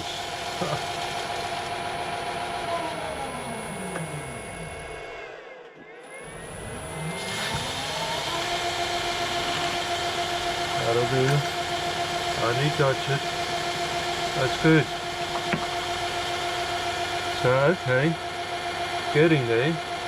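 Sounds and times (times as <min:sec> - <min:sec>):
lathe motor whine: 0:00.0 - 0:20.0.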